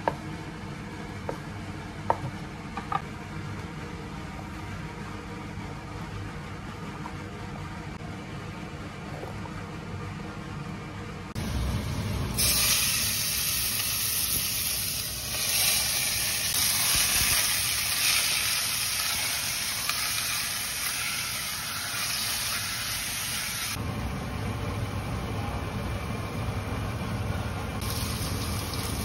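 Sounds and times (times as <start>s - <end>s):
chicken sizzling in hot oil: 12.3s - 23.8s, 27.8s - 29.0s.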